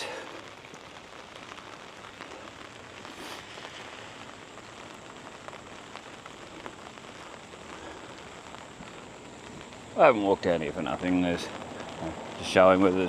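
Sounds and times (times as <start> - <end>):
heavy rain pattering: 0.0 - 13.0.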